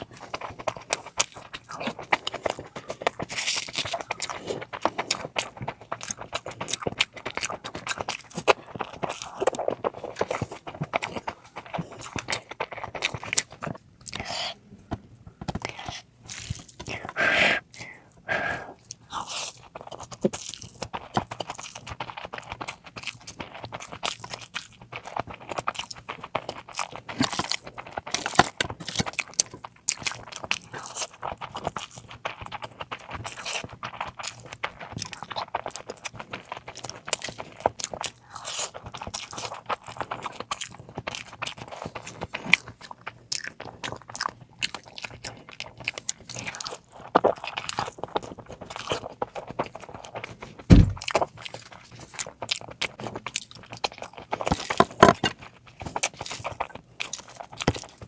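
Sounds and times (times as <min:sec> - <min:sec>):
chewing and crunching: 0:00.0 - 0:58.0
mouth noises: 0:16.8 - 0:19.4.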